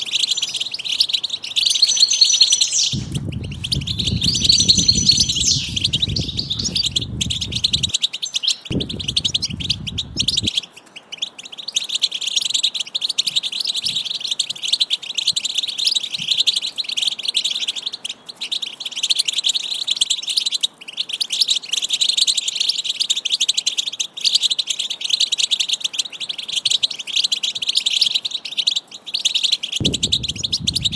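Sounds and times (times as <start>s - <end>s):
bird chicks chirping: 0.0s - 30.9s
low rumble: 2.9s - 7.9s, 8.7s - 10.5s, 29.8s - 30.9s.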